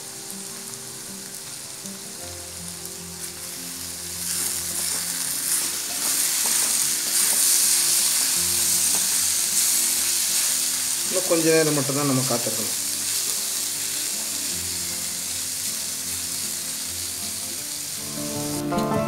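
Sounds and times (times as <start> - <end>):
vegetables sizzling in oil: 0.0 - 18.8
wooden spatula stirring: 4.2 - 11.2.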